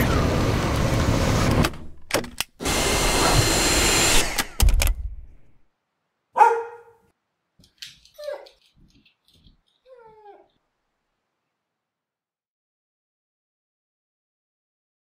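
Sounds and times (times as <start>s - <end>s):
cordless vacuum running: 0.0s - 1.8s, 2.6s - 4.9s
dog call: 6.4s - 7.1s.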